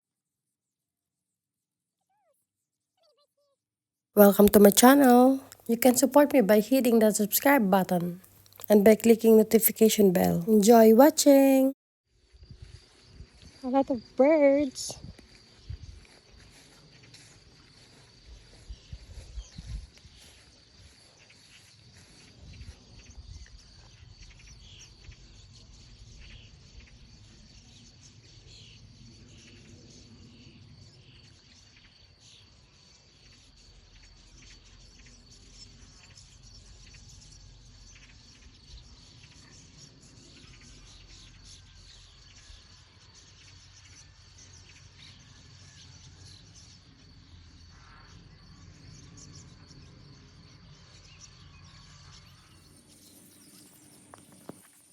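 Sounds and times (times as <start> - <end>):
small birds chirping: 4.2 - 11.8, 12.4 - 54.9
high insect trill: 52.0 - 54.9.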